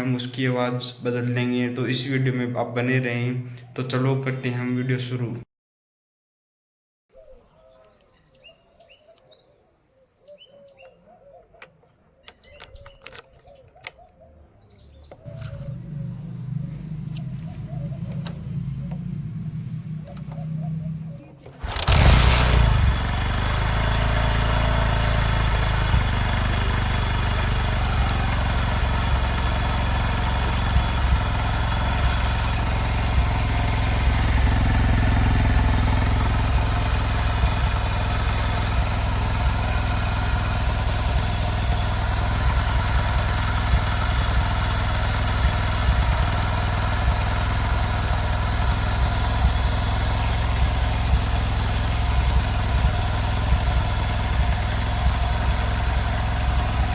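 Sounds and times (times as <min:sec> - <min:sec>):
motorcycle engine idling: 0:13.8 - 0:56.9.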